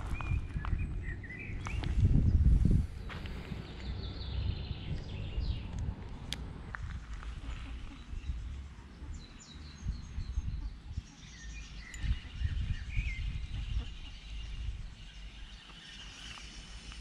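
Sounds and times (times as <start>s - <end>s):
low rumble: 0.0s - 9.1s
small birds chirping: 0.0s - 17.0s.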